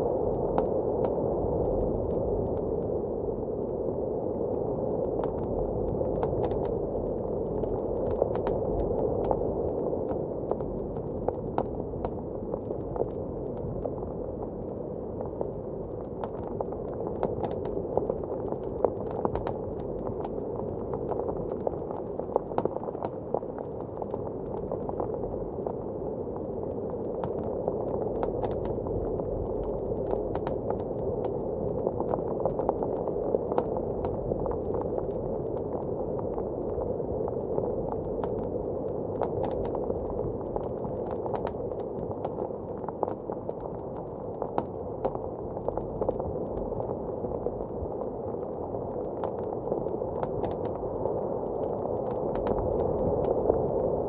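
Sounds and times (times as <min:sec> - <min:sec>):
wood fire crackling: 0:39.2 - 0:53.0.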